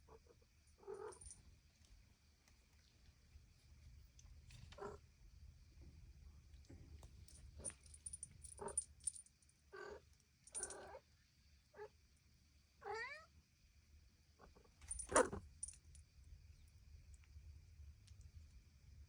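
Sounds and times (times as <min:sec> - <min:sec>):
cat meowing: 0:12.8 - 0:13.2.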